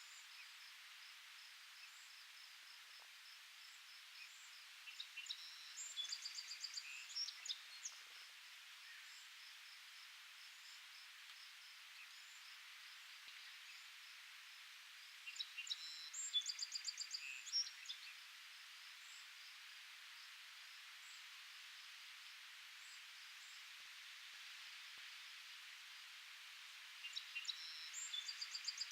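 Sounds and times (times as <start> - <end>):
breeze rustling leaves: 0.0 - 28.9
songbird trilled song: 27.0 - 28.9.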